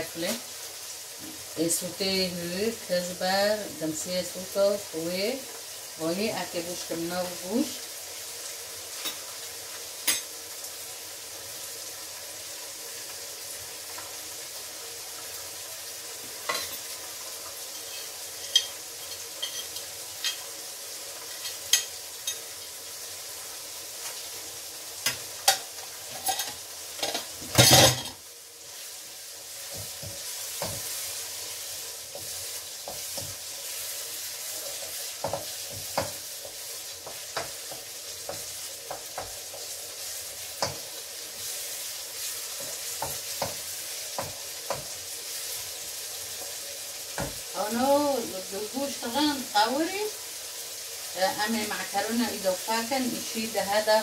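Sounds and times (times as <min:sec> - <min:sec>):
food sizzling in a wok: 0:00.0 - 0:54.0
dishes clattering: 0:25.5 - 0:28.2.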